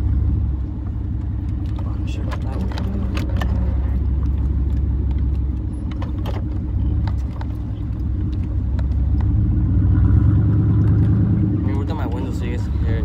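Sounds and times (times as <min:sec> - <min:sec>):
truck exhaust rumbling: 0:00.0 - 0:13.0.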